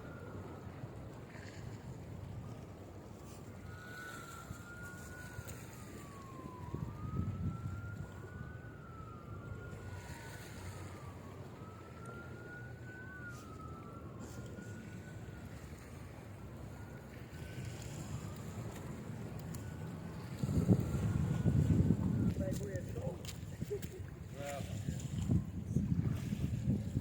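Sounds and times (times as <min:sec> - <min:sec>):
emergency siren wailing: 0:00.0 - 0:27.0.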